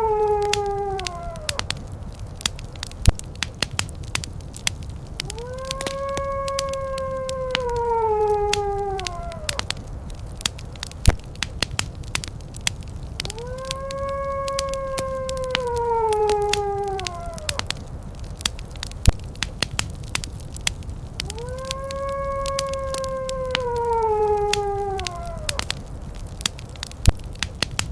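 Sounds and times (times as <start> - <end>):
dog howling: 0.0 - 1.9, 5.1 - 9.9, 13.2 - 17.9, 21.2 - 25.9
wood fire crackling: 0.0 - 27.9.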